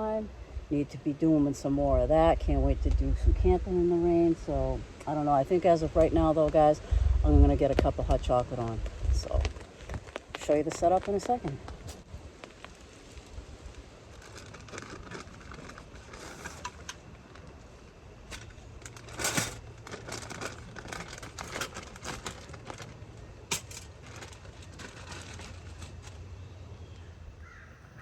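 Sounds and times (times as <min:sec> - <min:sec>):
steady low rumble: 0:00.0 - 0:27.4
gear crinkling and rustling: 0:07.7 - 0:27.1.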